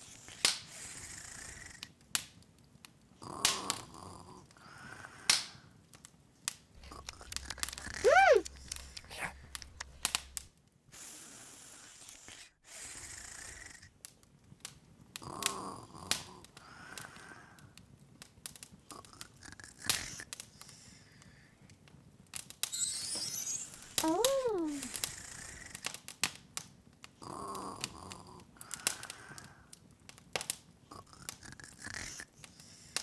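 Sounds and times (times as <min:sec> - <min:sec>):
open wood fire crackling: 0:06.8 - 0:10.6, 0:25.6 - 0:31.8
high squeak falling in pitch: 0:22.7 - 0:25.0.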